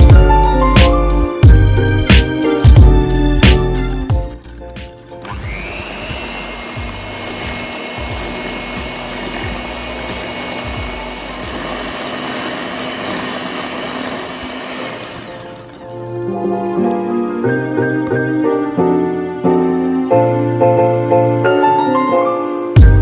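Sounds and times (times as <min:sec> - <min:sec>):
background music: 0:00.0 - 0:23.0
electric mixer whining: 0:05.0 - 0:17.6.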